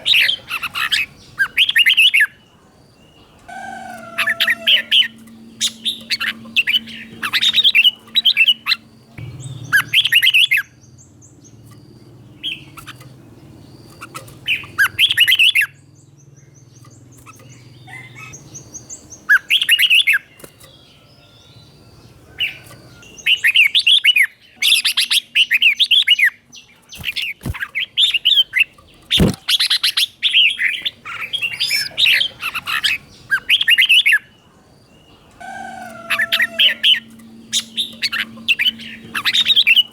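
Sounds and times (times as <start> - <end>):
bird singing warbling phrases: 0.0 - 39.9
sharp clicks: 28.8 - 29.7.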